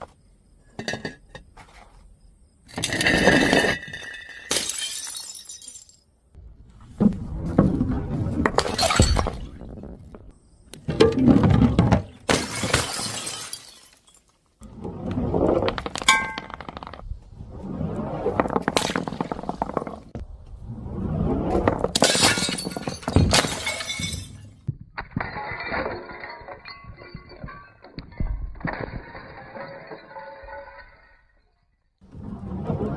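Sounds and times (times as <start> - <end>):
glass bottles shattering: 2.7 - 6.1, 8.6 - 9.5, 12.2 - 14.4, 15.8 - 16.9, 21.9 - 24.6, 25.2 - 31.6.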